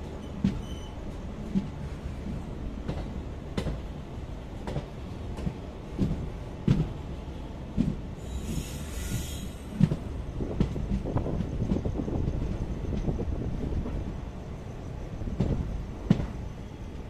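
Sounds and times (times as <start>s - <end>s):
train wheels rumbling on track: 0.0s - 17.0s
brief hiss: 8.2s - 9.8s.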